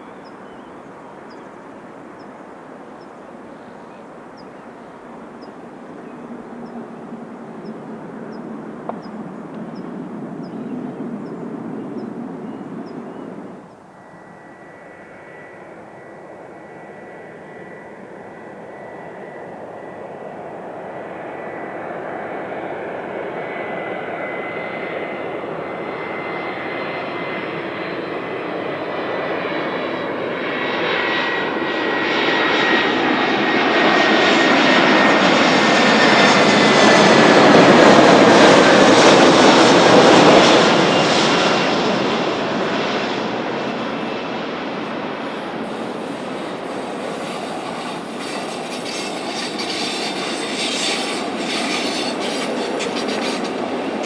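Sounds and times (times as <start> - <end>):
jet airliner engine: 0.0 - 54.0
high engine whine: 30.9 - 54.0.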